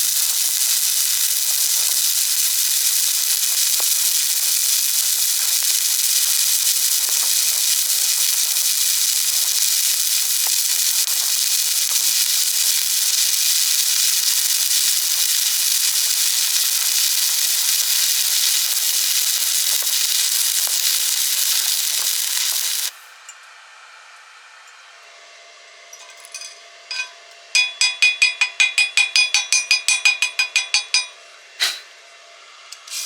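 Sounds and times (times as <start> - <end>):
welding arc crackling and hissing: 0.0 - 23.2, 32.8 - 33.0.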